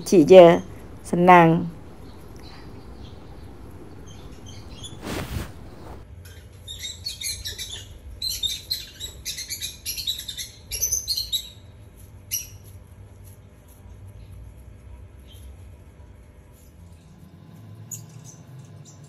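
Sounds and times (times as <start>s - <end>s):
small birds chirping: 0.0s - 6.0s.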